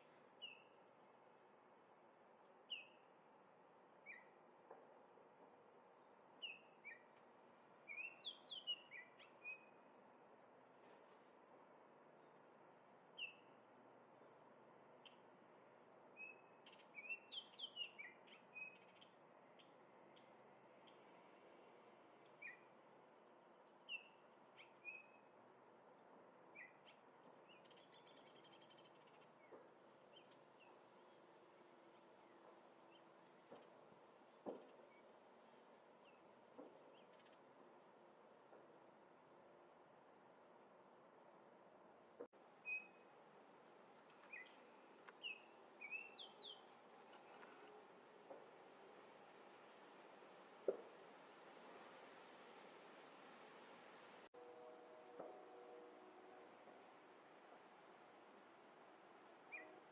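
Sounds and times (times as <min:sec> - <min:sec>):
songbirds chirping: 0:00.0 - 0:37.9, 0:42.6 - 0:50.9
faint background hiss: 0:00.0 - 0:59.9.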